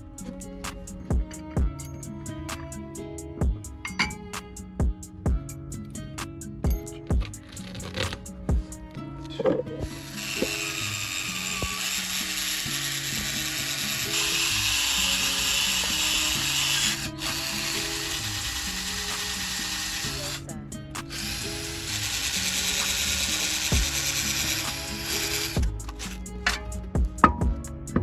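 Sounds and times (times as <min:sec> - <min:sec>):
background music: 0:00.0 - 0:28.0
socket ratchet clicking: 0:06.8 - 0:08.3, 0:09.9 - 0:20.4, 0:21.0 - 0:26.8.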